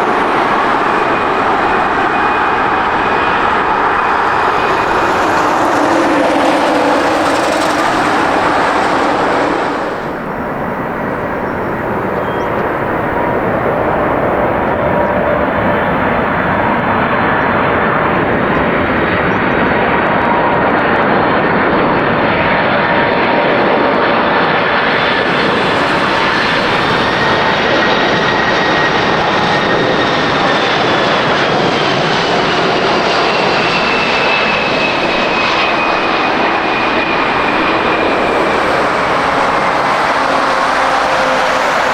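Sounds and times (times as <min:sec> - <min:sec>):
jet engines roaring with turbine whine: 0:00.0 - 0:41.9.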